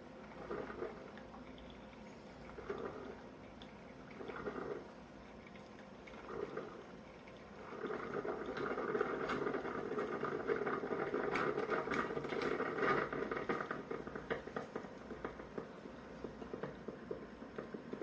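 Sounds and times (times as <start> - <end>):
coffee maker bubbling and sputtering: 0.0 - 18.0.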